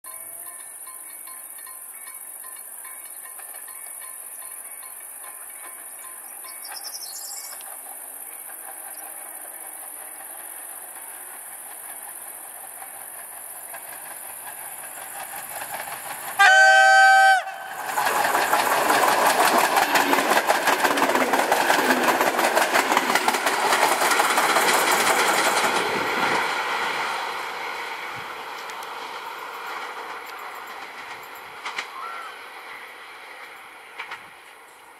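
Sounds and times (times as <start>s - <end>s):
train wheels knocking on rails: 0.2s - 27.2s
train horn chord: 16.4s - 17.8s.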